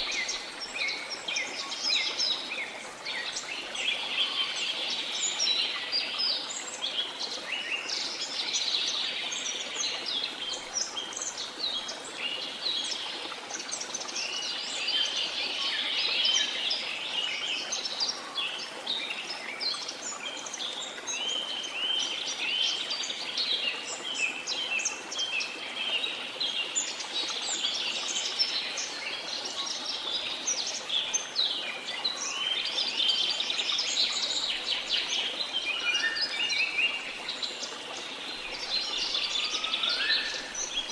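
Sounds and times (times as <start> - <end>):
running water: 0.0 - 40.9.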